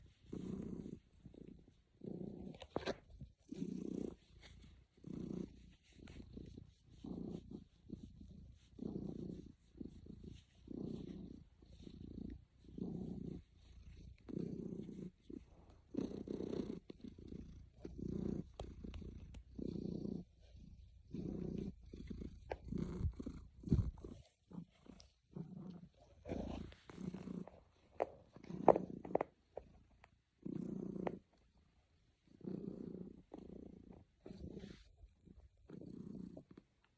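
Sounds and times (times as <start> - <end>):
cat purring: 0.0 - 36.9.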